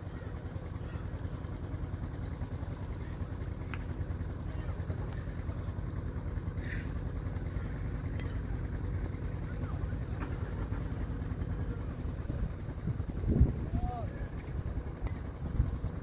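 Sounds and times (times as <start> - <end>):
wind buffeting microphone: 12.2 - 16.0.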